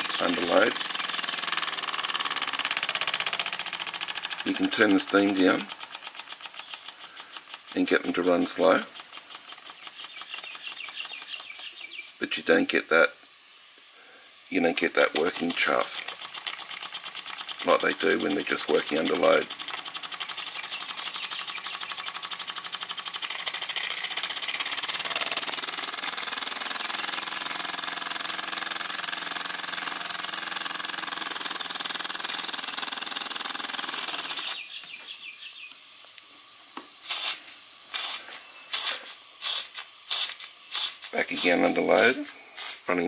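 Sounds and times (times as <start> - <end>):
model steam engine chuffing: 0.0 - 11.6, 14.6 - 34.6
steam hiss: 0.0 - 43.0.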